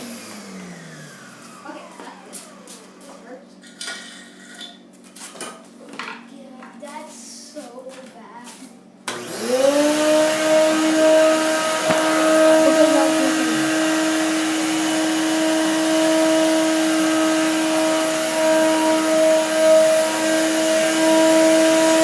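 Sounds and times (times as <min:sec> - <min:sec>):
vacuum cleaner running: 0:00.0 - 0:03.4, 0:09.0 - 0:22.0.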